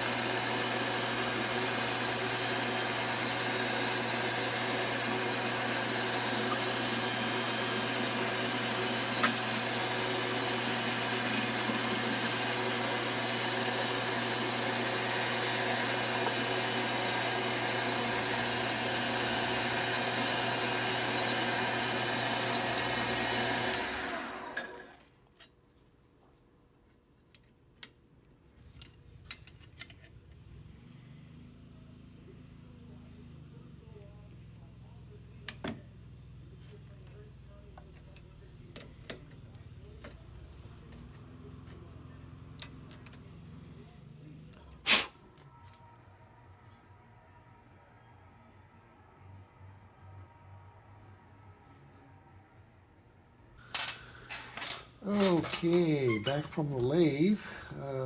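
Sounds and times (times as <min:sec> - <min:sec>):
lathe motor running: 0:00.0 - 0:25.0, 0:53.7 - 0:58.0.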